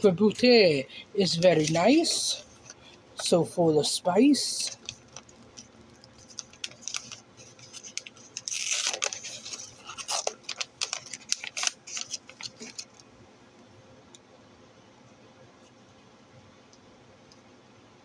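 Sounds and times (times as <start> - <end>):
packaging crinkling: 0.2 - 3.4, 4.2 - 13.2.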